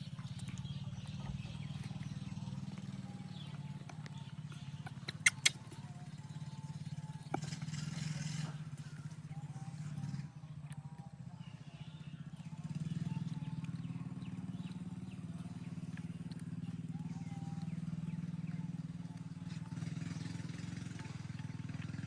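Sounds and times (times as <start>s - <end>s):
small engine running: 0.0s - 22.0s
sharp clicks: 4.9s - 5.8s.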